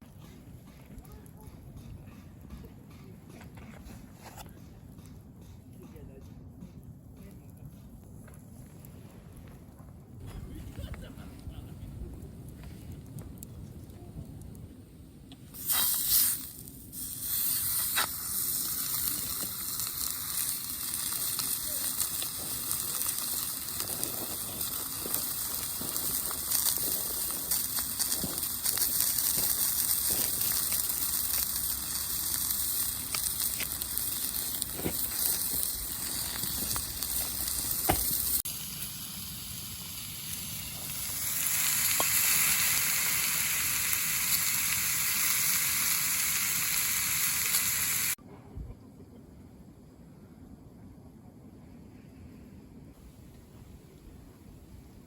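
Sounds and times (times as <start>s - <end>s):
food sizzling over campfire: 10.2s - 48.2s.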